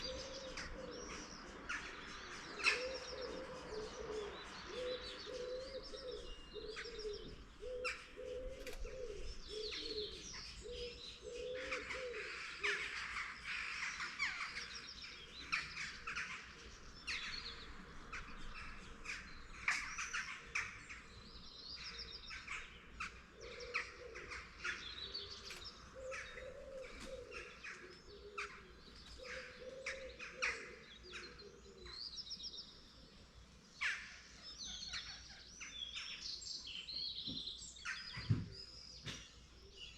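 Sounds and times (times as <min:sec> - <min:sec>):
low cooing: 0:00.0 - 0:01.1, 0:02.7 - 0:12.7, 0:26.0 - 0:30.8
small birds chirping and singing: 0:00.0 - 0:39.9.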